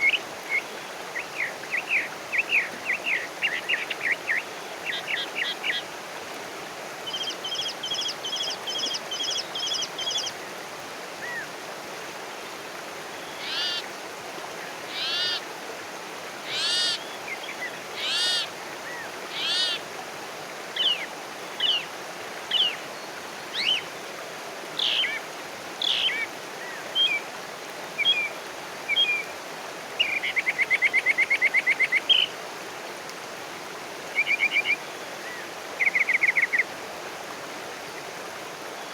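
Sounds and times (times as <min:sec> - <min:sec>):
wild birds singing: 0:13.3 - 0:13.8, 0:14.9 - 0:15.4, 0:16.5 - 0:19.8.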